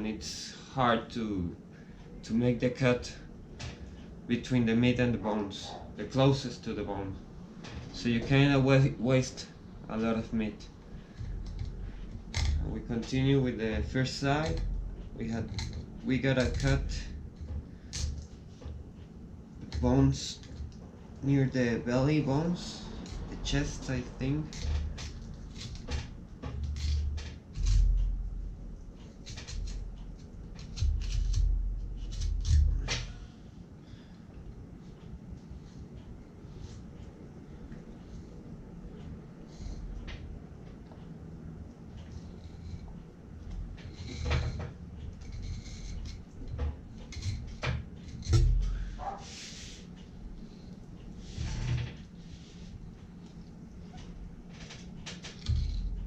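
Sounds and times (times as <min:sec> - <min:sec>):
knife scraping and crunching fish: 0:30.6 - 0:33.0.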